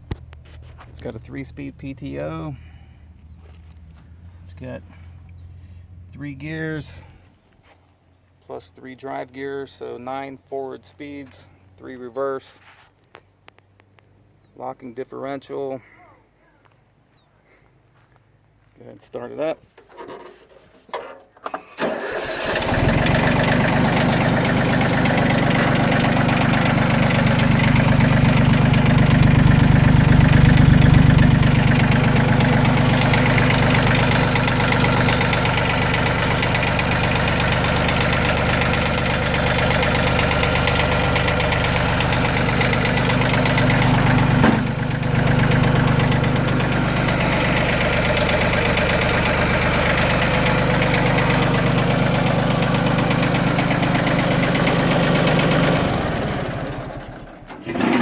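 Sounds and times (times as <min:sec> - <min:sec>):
diesel engine starting and running: 0:00.0 - 0:07.4, 0:21.4 - 0:58.0.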